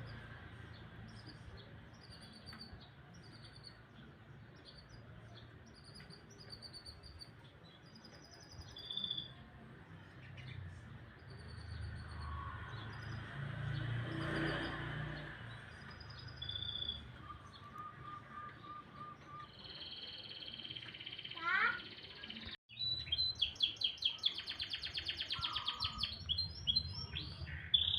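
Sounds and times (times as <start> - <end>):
canary singing: 1.1 - 9.4, 15.5 - 27.9.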